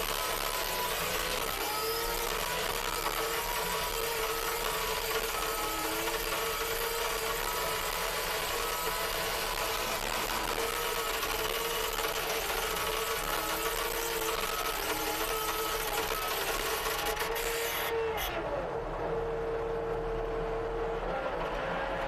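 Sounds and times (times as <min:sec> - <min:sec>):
skid steer whine: 0:00.0 - 0:22.0.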